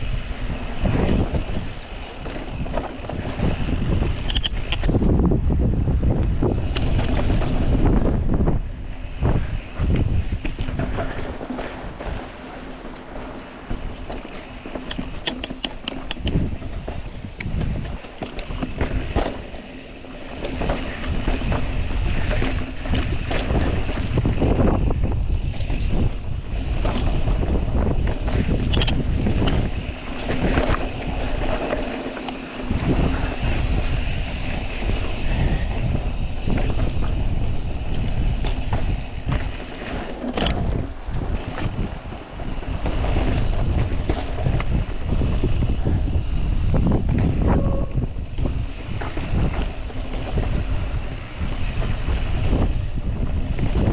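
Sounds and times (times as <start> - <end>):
bike rattling over rock: 0.0 - 53.9
wind buffeting microphone: 0.0 - 53.9.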